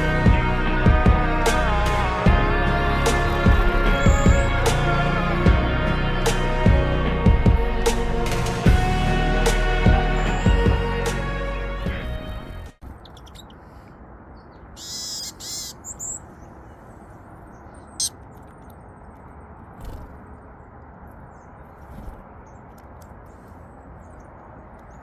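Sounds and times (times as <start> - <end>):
high-pitched bird calls: 3.0 - 4.7, 12.8 - 18.4.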